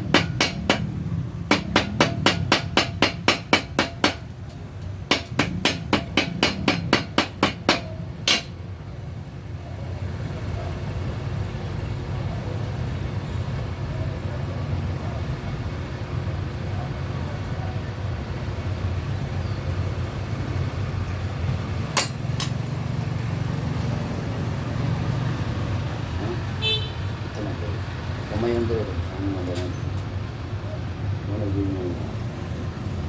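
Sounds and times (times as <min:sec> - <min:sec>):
hammer striking metal: 0:00.0 - 0:08.6, 0:22.0 - 0:22.6
steady low hum: 0:00.0 - 0:08.8.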